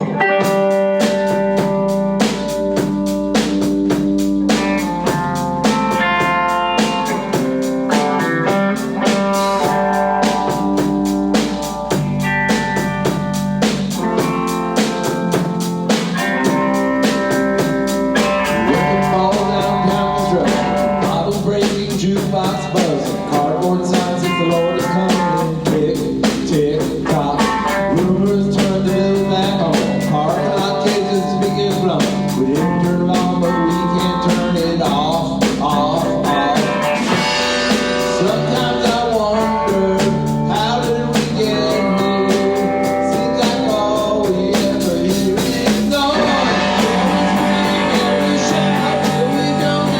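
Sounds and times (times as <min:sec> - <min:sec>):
rock band playing: 0:00.0 - 0:49.9
person singing: 0:13.9 - 0:49.9.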